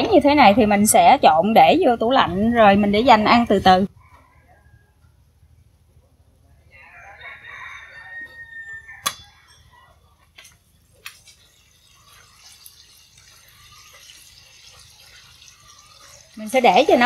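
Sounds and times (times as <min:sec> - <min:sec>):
rooster crowing: 0:03.9 - 0:05.2, 0:06.6 - 0:10.1
mushrooms sizzling in oil: 0:11.0 - 0:17.0.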